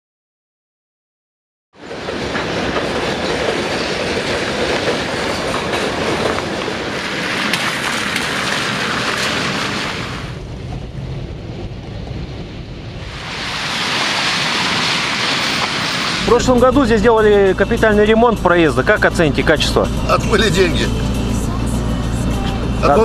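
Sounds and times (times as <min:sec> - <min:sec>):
freight train wheels clattering: 0:01.8 - 0:09.9.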